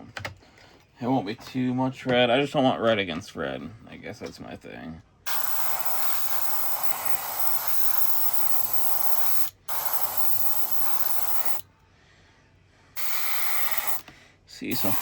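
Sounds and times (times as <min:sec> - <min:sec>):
spray paint hissing: 0:05.3 - 0:11.6, 0:13.0 - 0:14.0, 0:14.7 - 0:15.0.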